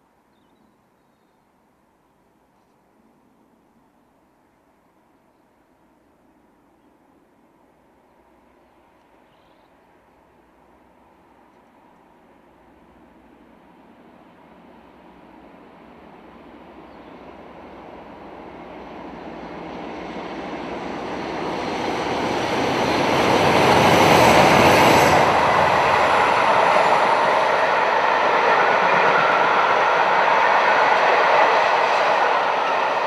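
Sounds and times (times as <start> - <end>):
diesel train passing: 12.1 - 33.0.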